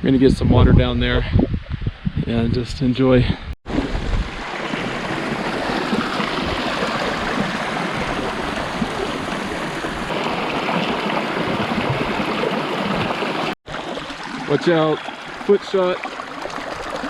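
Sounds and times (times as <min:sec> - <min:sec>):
stream flowing: 0:03.7 - 0:17.0.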